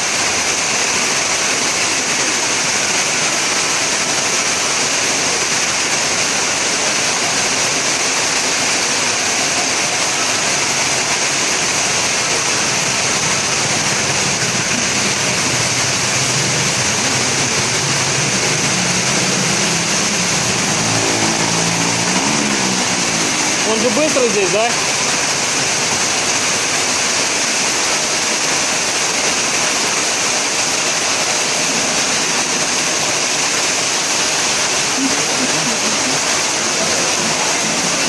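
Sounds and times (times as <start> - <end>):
heavy rain falling: 0.0 - 38.0
low hum: 16.3 - 23.6.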